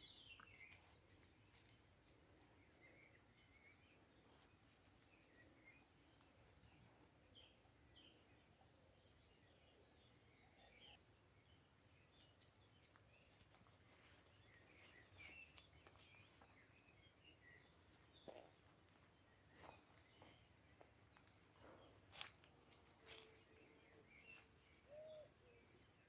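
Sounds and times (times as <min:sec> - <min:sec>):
faint birdsong chirps: 0:00.0 - 0:26.0.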